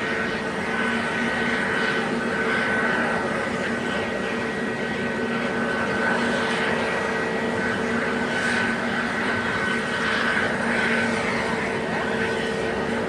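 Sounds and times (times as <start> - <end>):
jet engines idling: 0.0 - 13.0.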